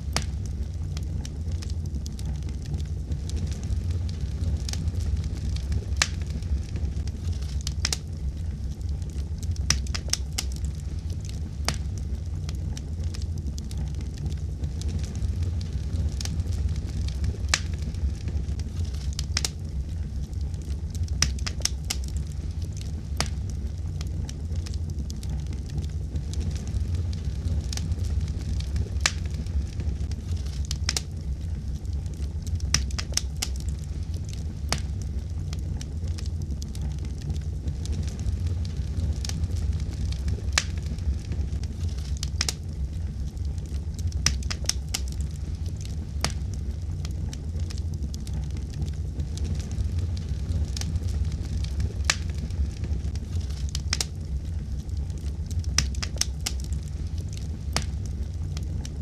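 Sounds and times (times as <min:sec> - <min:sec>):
fire crackling and popping: 0:00.0 - 0:59.0
flames rumbling: 0:00.0 - 0:59.0.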